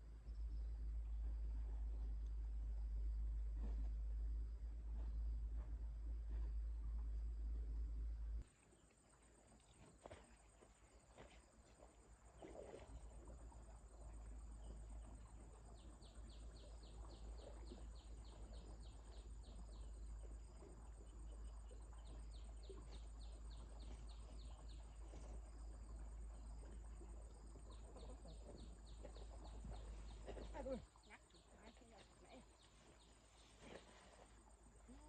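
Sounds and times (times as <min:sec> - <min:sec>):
low rumble: 0:00.0 - 0:08.5.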